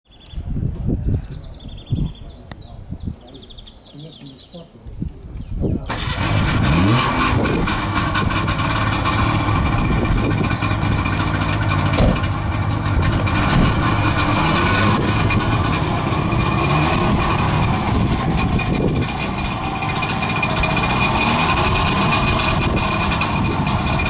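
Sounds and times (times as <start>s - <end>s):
two-stroke engine revving: 5.9s - 24.0s.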